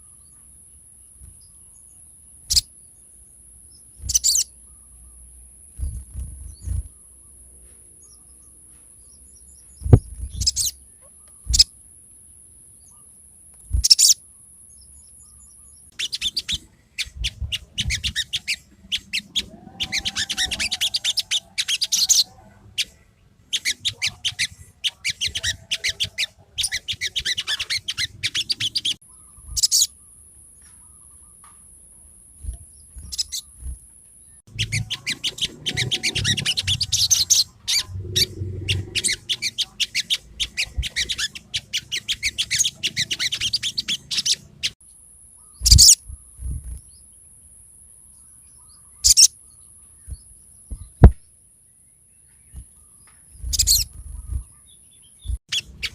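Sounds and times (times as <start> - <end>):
rapid high chattering trills: 34.5 - 44.8.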